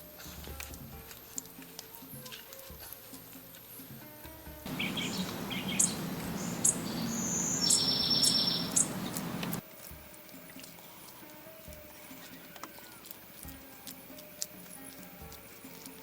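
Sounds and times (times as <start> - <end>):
birds chirping: 4.7 - 9.6
steady rushing noise: 4.7 - 9.6.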